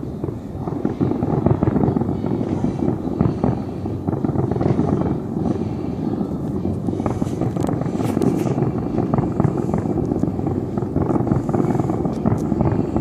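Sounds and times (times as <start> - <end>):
fireworks rumble and crackle: 0.0 - 13.0
sharp firework cracks: 0.0 - 13.0.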